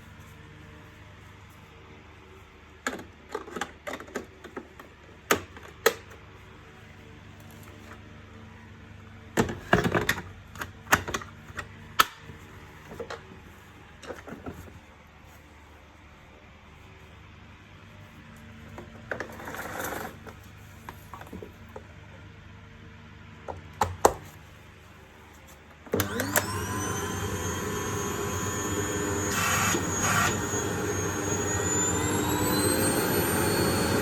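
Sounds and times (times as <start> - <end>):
vacuum cleaner motor whining: 25.9 - 34.0.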